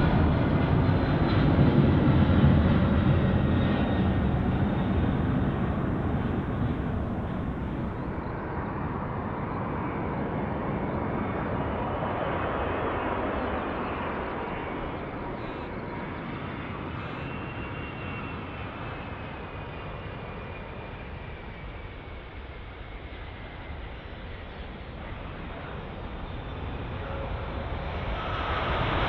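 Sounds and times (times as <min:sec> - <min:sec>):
high turbine whine: 0:00.0 - 0:09.1
jet airliner engines rumbling: 0:00.0 - 0:29.0.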